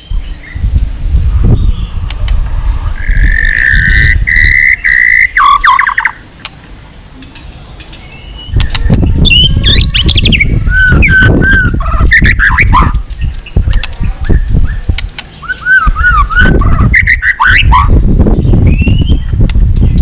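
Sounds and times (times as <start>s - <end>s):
heavy low rumble: 0.6s - 5.4s, 8.5s - 20.0s
bird singing whistled notes: 7.9s - 19.4s.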